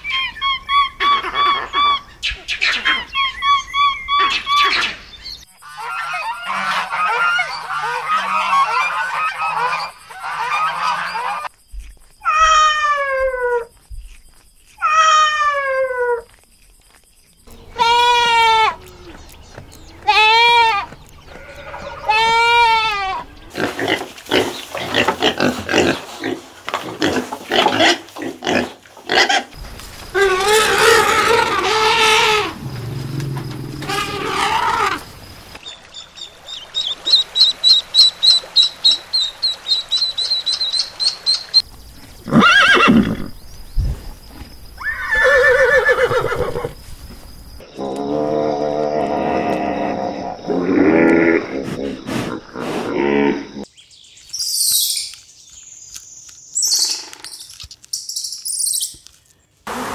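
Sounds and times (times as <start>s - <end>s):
animal calls and grunts: 0.0s - 5.0s, 5.6s - 35.6s, 47.6s - 53.7s
goat bleating: 17.5s - 19.2s, 20.0s - 23.3s, 33.8s - 35.0s
horse whinnying: 30.2s - 35.0s, 42.3s - 43.3s, 44.8s - 46.8s.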